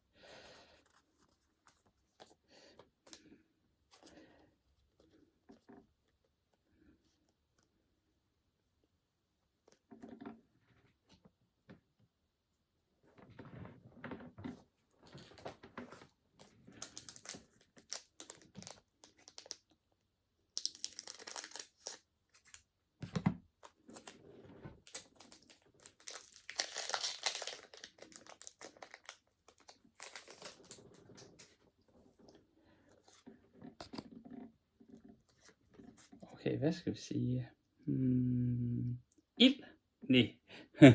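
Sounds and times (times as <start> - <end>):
foil wrappers crinkling and tearing: 16.7 - 19.6, 20.6 - 22.6, 24.8 - 31.5.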